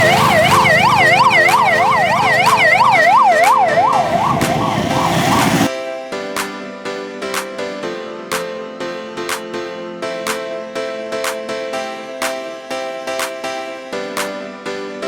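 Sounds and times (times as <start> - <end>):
emergency siren yelping: 0.0 - 5.7.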